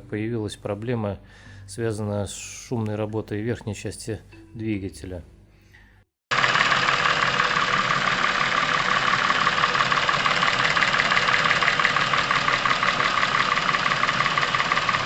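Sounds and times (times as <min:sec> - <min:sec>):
car engine running: 0:06.3 - 0:15.0
rapid ticking clatter: 0:06.3 - 0:15.0.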